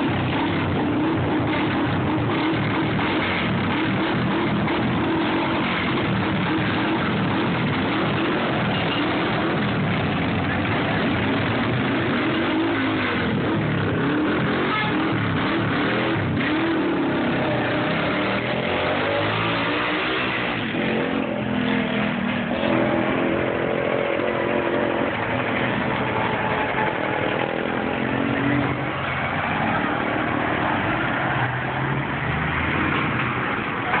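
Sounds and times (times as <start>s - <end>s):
motorcycle engine running: 0.0s - 32.2s
rushing noise: 0.0s - 34.0s.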